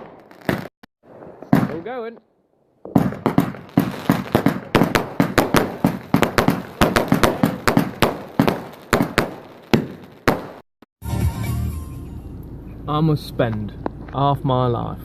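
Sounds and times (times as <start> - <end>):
firework bangs: 0.0 - 2.2, 2.8 - 10.6.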